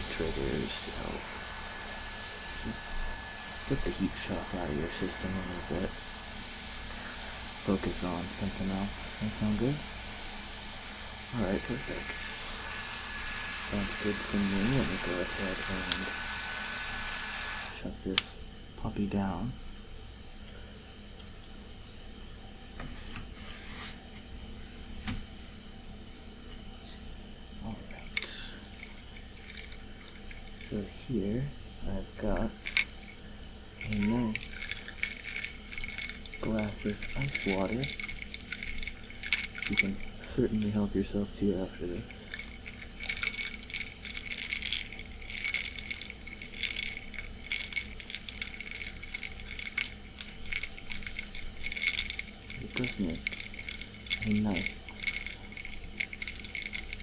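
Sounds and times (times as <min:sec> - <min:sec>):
air conditioner humming: 0:00.0 - 0:57.0
ice cubes clinking in glass: 0:13.9 - 0:16.1, 0:28.0 - 0:30.8, 0:32.6 - 0:33.2, 0:33.8 - 0:40.8, 0:41.9 - 0:57.0
objects rustling and clicking: 0:27.7 - 0:30.8, 0:31.5 - 0:40.8, 0:41.9 - 0:57.0.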